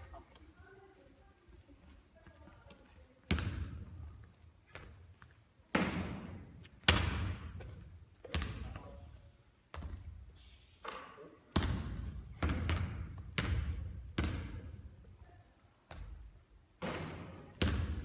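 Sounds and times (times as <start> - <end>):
basketball bouncing on court floor: 3.3 - 4.0, 4.7 - 8.9, 11.5 - 14.7, 16.8 - 18.0.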